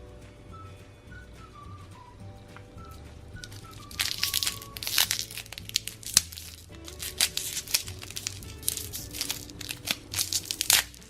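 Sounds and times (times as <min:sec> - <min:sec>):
faint background music: 0:00.0 - 0:11.0
plastic packaging crinkling: 0:03.4 - 0:11.0.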